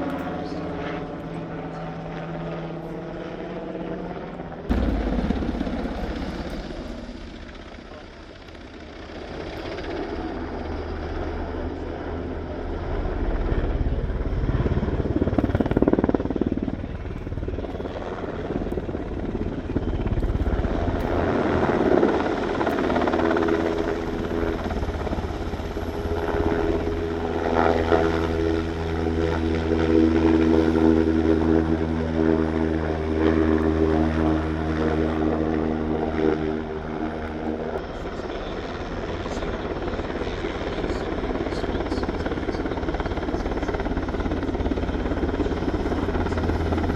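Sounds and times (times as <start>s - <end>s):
aircraft low hum: 0.0s - 46.9s.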